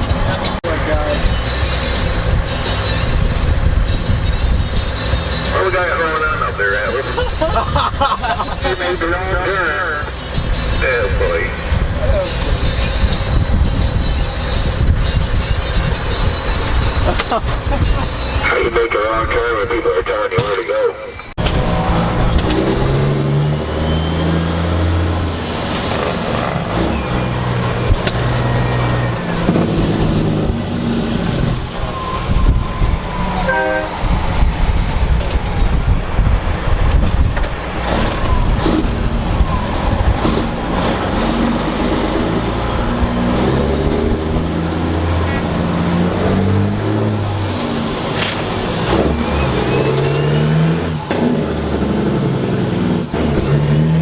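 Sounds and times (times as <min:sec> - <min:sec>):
diesel truck engine shifting gears: 0:00.0 - 0:54.0
truck horn: 0:21.6 - 0:34.3, 0:38.6 - 0:54.0.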